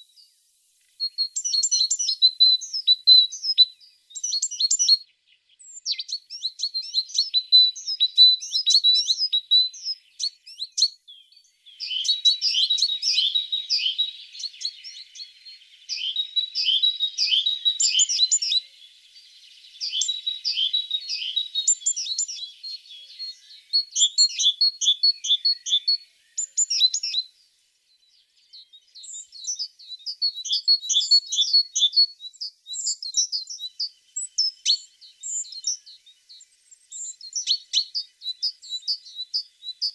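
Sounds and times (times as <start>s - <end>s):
birds singing high chirps and trills: 0.0s - 39.9s.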